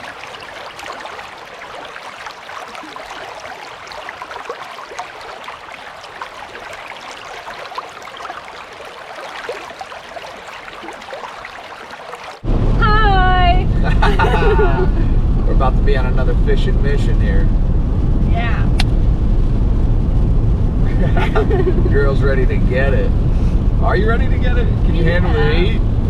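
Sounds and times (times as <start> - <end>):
creek water babbling: 0.0 - 15.1.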